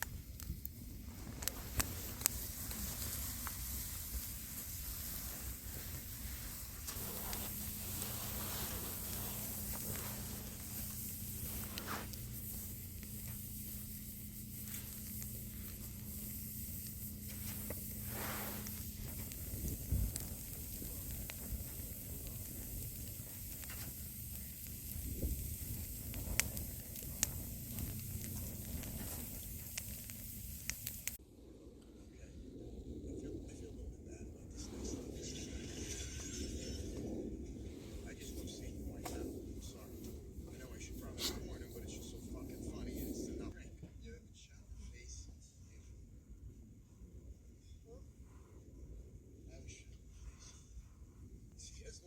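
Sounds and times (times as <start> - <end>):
meat sizzling on grill: 0.0 - 31.2
sharp pops: 0.0 - 31.2
wood fire crackling: 0.0 - 31.2, 34.3 - 43.6
steady hiss: 0.0 - 31.5, 32.2 - 52.0.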